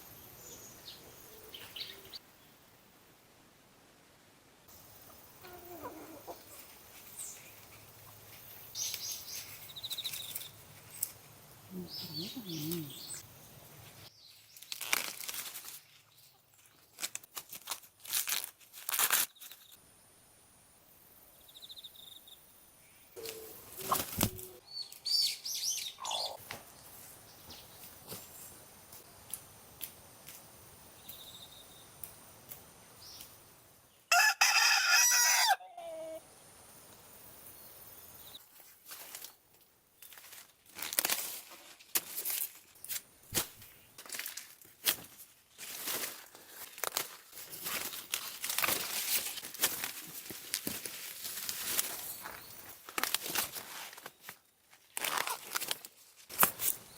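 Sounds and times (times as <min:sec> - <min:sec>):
rooster crowing: 0:34.1 - 0:36.2
rustling and clicking handling noises: 0:38.6 - 0:56.8.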